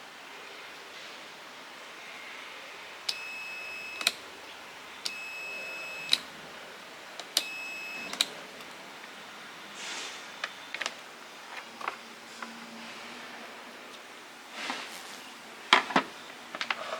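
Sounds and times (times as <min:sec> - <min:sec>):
electronic beep: 0:03.1 - 0:04.1, 0:05.1 - 0:06.2, 0:07.4 - 0:08.2.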